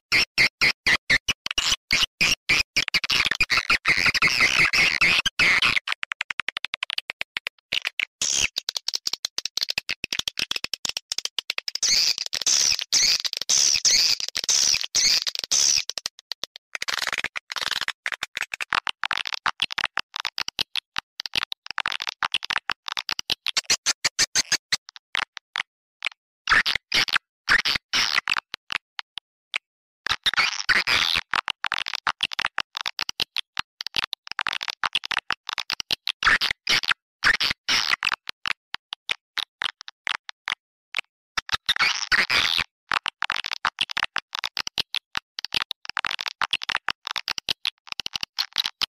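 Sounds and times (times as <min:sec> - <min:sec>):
recorded swiftlet chirps and clicks: 0:08.2 - 0:18.7, 0:23.0 - 0:24.8.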